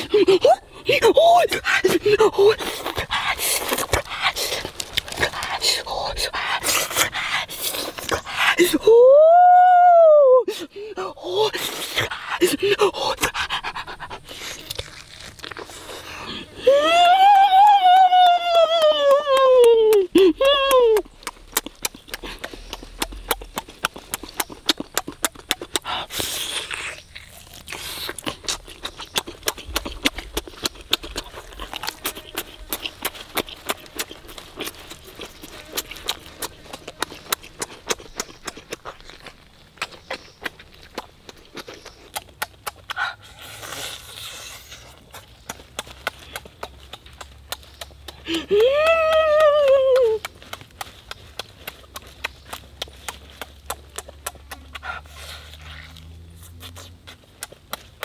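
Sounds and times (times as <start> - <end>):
open-mouthed chewing and lip-smacking: 0.0 - 58.0
person exclaiming: 8.6 - 11.6, 16.6 - 21.1, 48.3 - 50.2.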